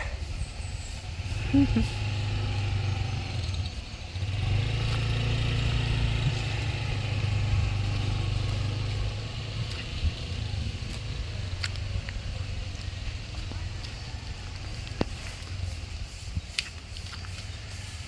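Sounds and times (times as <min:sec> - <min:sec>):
small motorbike engine running: 0:00.0 - 0:18.0.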